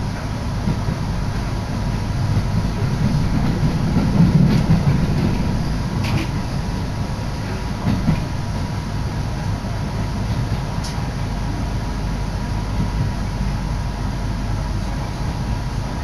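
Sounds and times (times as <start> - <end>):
train wheels and motors rumbling: 0.0 - 16.0.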